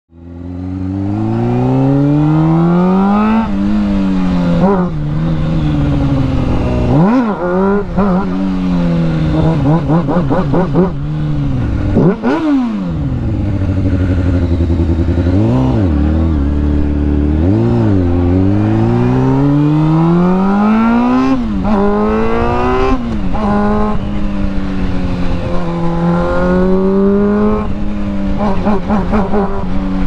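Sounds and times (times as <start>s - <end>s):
motorcycle engine accelerating: 0.1s - 30.0s.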